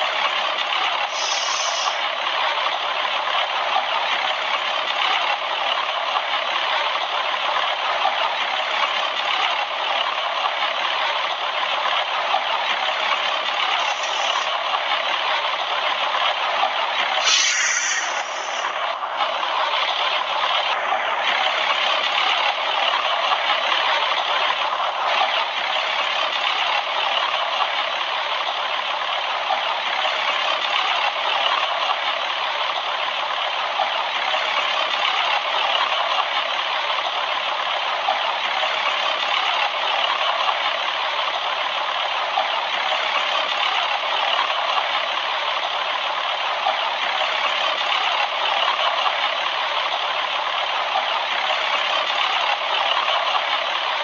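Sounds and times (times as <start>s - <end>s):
heat pump unit hissing: 1.1s - 2.0s, 17.2s - 18.8s.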